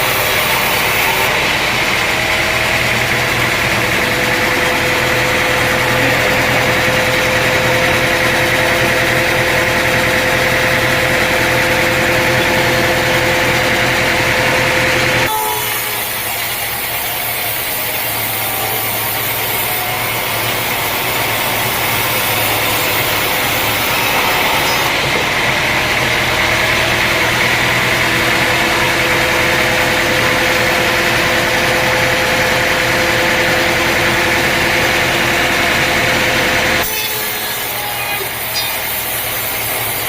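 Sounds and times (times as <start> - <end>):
high-pitched machine tones: 0.0 - 25.0, 36.8 - 40.0
engine hum: 0.0 - 40.0.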